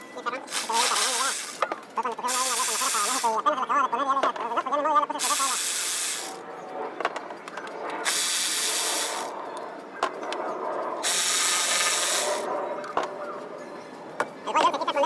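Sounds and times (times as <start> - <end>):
electric ratchet bursts: 0.4 - 3.4, 5.2 - 6.4, 8.0 - 9.4, 11.0 - 12.5.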